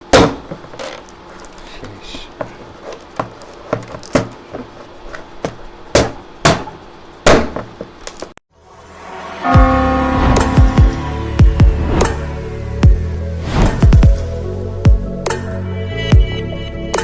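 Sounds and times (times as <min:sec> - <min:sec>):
plastic bottle being struck: 0:00.0 - 0:01.0, 0:02.4 - 0:08.3.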